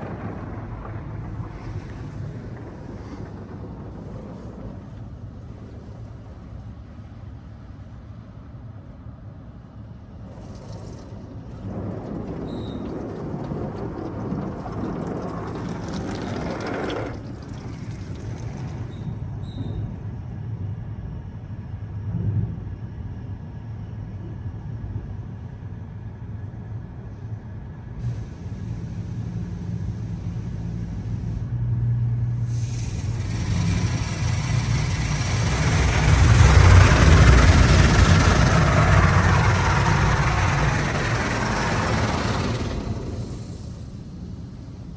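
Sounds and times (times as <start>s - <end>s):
spraying water: 0.0s - 3.4s, 10.2s - 19.1s, 28.0s - 31.4s, 32.4s - 44.9s
car wash motors humming: 0.0s - 8.0s, 9.5s - 19.4s, 28.0s - 44.9s
loud rushing hiss: 28.0s - 31.4s, 32.4s - 44.9s.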